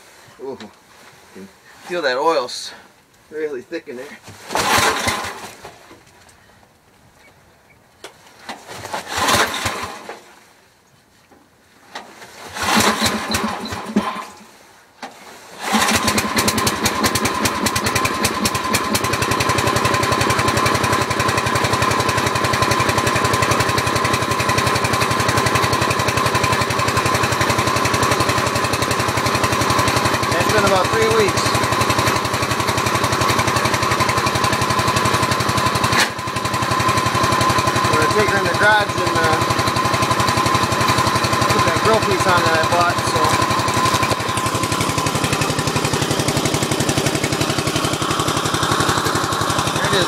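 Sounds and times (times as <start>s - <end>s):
small engine running: 8.9s - 10.1s, 12.5s - 14.2s, 15.6s - 50.0s
engine cranking sluggishly: 9.0s - 10.1s, 12.5s - 14.2s, 15.6s - 50.0s.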